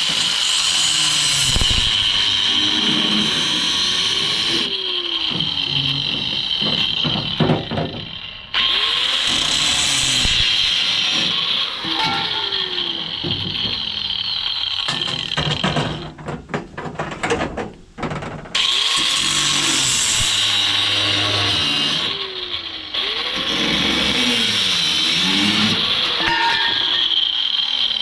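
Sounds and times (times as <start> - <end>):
power tool cutting metal pipe: 0.0 - 16.1, 18.6 - 28.0
metal clanks and knocks: 5.3 - 8.2, 11.1 - 18.6, 26.1 - 27.1.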